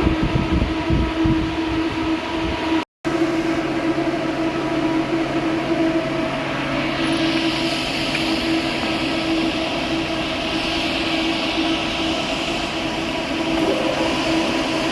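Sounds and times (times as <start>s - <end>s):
workshop machinery hum: 0.0s - 14.9s
noisy hiss: 6.5s - 14.9s.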